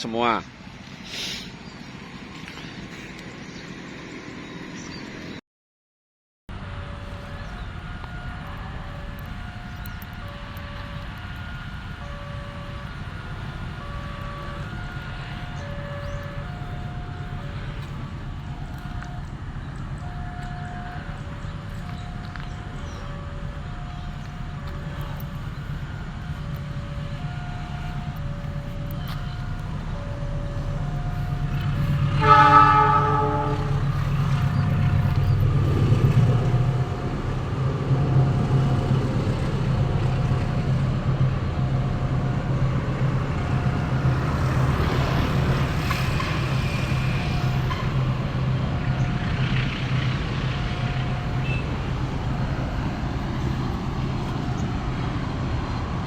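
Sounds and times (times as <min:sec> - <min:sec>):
vehicle engine running: 0:06.5 - 0:56.0
vehicle horn blast: 0:32.0 - 0:33.9.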